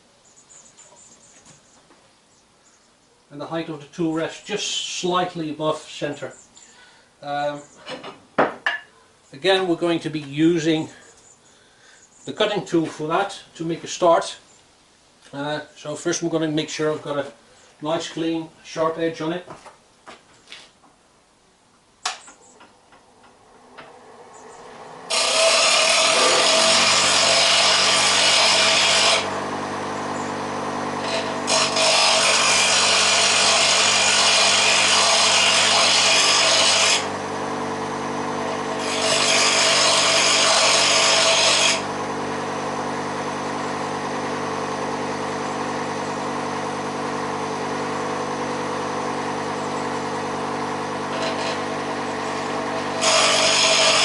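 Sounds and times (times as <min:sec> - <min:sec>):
grinder motor running: 0:23.7 - 0:54.0
harsh grinding of metal tool: 0:25.1 - 0:54.0.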